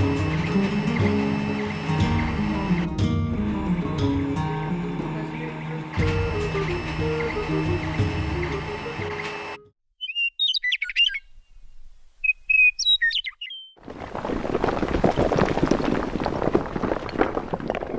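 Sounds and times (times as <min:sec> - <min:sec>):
songbird chirping: 0:10.0 - 0:13.8
dense crackling crumbling noise: 0:13.8 - 0:17.9.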